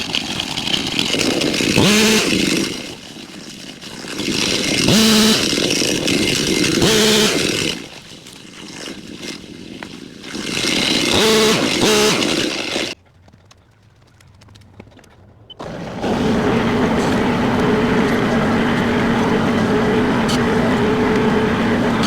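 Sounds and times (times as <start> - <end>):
weed eater engine revving: 0.0 - 13.0, 15.5 - 22.0.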